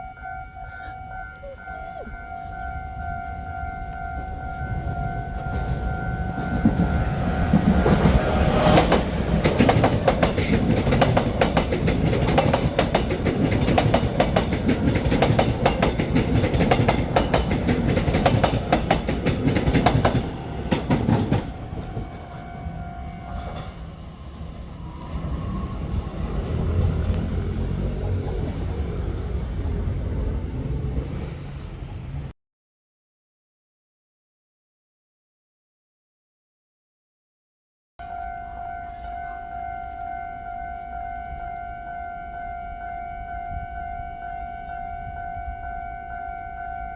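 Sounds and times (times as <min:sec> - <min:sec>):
train horn: 0:00.0 - 0:11.6, 0:12.4 - 0:30.0, 0:38.0 - 0:46.9
train wheels clattering over rails: 0:05.4 - 0:32.3.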